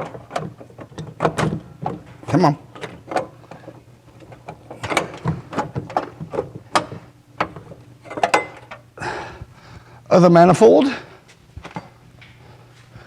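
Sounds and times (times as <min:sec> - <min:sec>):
metal clinks and knocks: 0:02.8 - 0:08.8.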